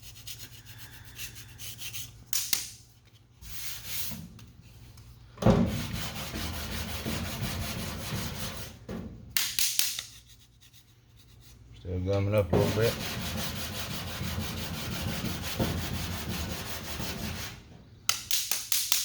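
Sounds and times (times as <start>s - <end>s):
hand sanding: 0.0s - 2.7s, 5.7s - 8.8s, 9.9s - 11.7s, 12.3s - 19.0s.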